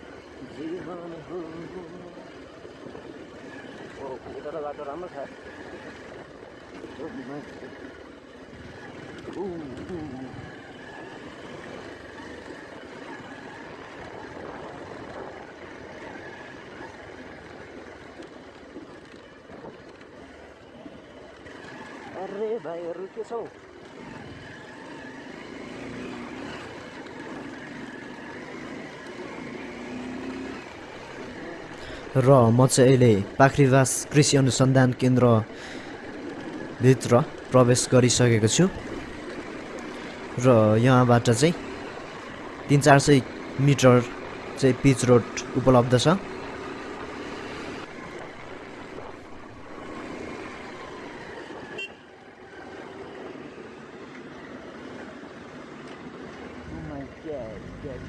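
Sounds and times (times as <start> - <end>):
motorcycle engine running: 0.0 - 58.0
road and wind noise: 0.0 - 58.0
short horn beep: 51.7 - 52.1.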